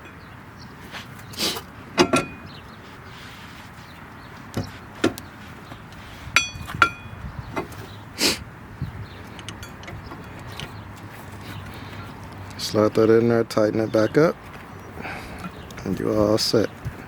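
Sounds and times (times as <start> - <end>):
metal tools knocking and clinking: 2.0 - 2.4, 9.3 - 10.7
ringing metallic clinks: 9.4 - 9.9.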